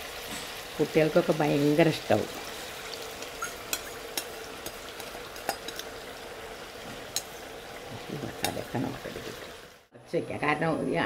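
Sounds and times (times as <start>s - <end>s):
chicken sizzling in oil: 0.0s - 9.9s
spatula stirring: 2.4s - 6.0s, 7.0s - 9.4s.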